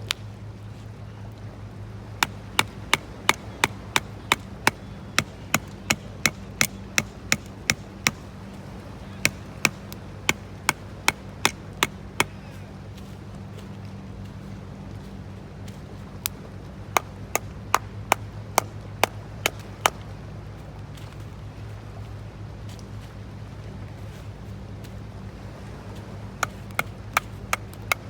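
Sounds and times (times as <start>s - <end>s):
sharp evenly spaced knocks: 2.2s - 12.5s, 16.3s - 20.1s, 26.4s - 28.0s.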